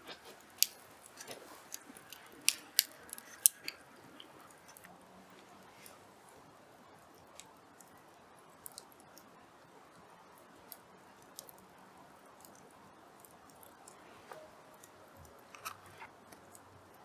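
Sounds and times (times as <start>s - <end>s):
fire popping: 0.0s - 6.4s
campfire crackling: 0.0s - 17.0s.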